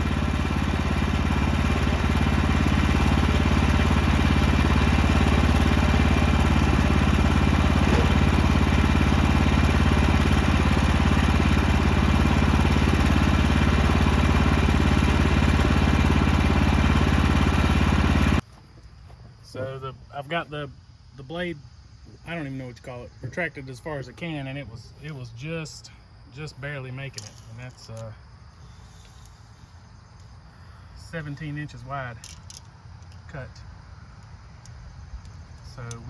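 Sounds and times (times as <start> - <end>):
small sawmill engine running: 0.0 - 18.4.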